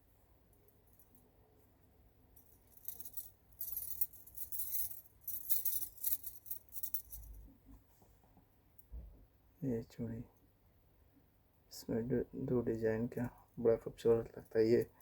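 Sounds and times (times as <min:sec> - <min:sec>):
bangles jingling and clinking: 0:02.4 - 0:07.4.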